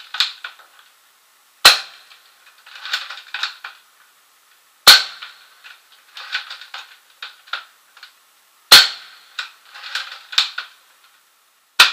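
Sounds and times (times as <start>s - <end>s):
airsoft gun shot: 1.6s - 2.1s, 4.8s - 5.4s, 8.7s - 9.2s.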